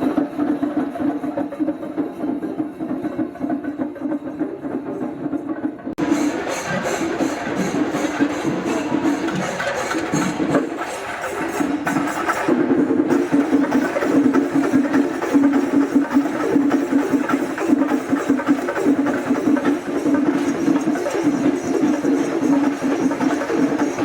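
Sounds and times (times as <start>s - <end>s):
fast dense drumming: 11.5s - 24.0s.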